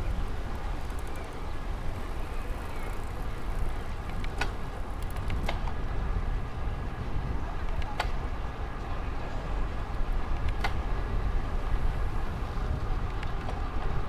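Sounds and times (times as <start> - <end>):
sharp clicks: 0.0 - 5.6
bicycle riding noise: 0.0 - 8.0, 9.4 - 14.0
wind rumble on microphone: 0.0 - 14.0.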